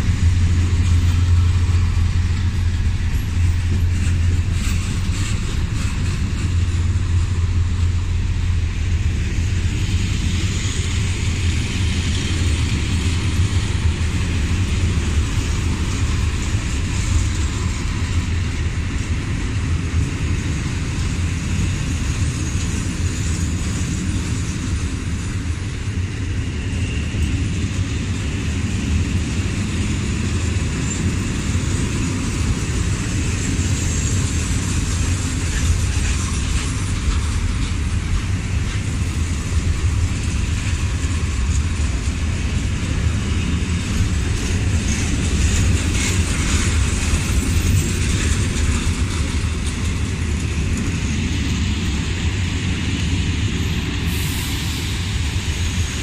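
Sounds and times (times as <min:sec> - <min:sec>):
train rattling: 0:00.0 - 0:56.0
train rumbling past: 0:00.0 - 0:56.0.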